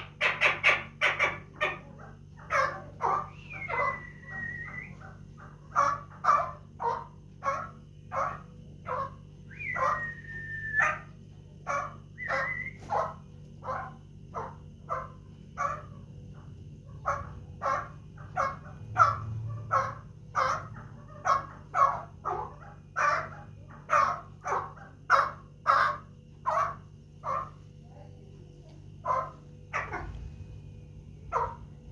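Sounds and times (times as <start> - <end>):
partridge chuck calls: 0.0 - 27.7, 28.9 - 30.3, 31.2 - 31.9
falling whistled bird notes: 3.3 - 5.0, 9.5 - 11.0, 12.2 - 12.9.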